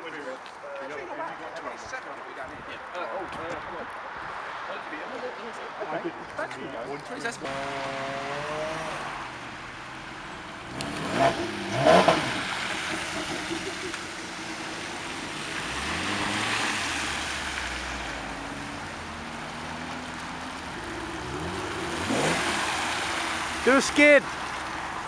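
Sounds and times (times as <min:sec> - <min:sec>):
car engines revving: 0:07.2 - 0:25.0.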